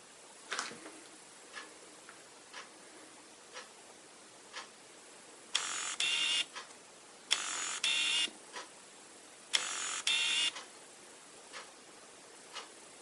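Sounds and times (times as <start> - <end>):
buzzing whirs of focus drive: 5.4 - 11.8.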